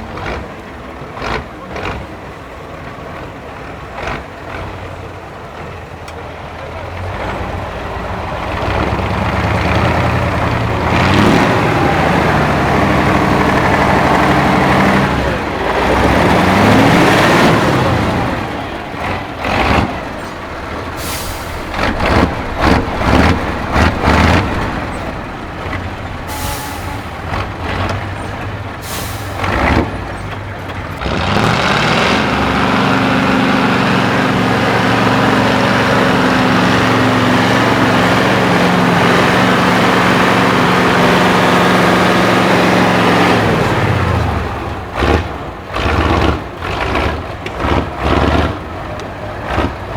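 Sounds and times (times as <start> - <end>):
diesel truck engine revving: 0.0 - 49.9
compressed air hisses: 21.0 - 21.8, 26.3 - 27.1, 28.8 - 29.4.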